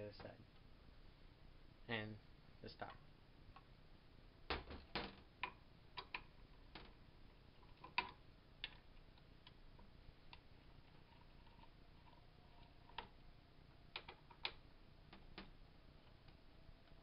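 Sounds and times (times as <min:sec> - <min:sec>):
clicks and taps of small parts: 0:04.5 - 0:07.0, 0:07.6 - 0:08.8, 0:13.9 - 0:15.5.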